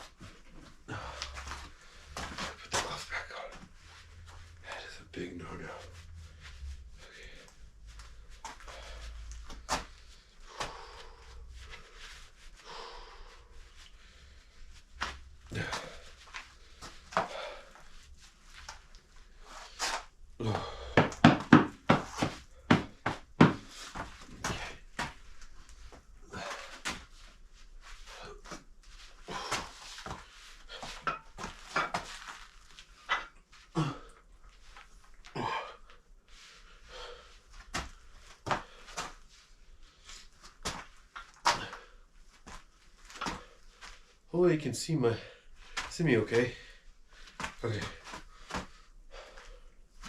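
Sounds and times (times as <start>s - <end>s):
person breathing: 0.9s - 5.0s, 5.7s - 18.3s, 18.9s - 27.1s, 28.0s - 31.2s, 35.4s - 40.3s, 46.5s - 49.8s.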